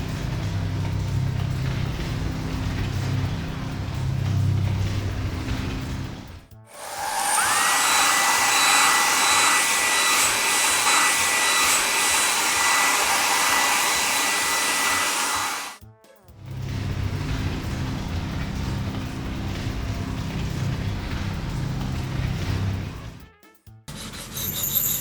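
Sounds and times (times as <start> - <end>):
air dryer blowing hiss and whine: 6.7 - 15.8.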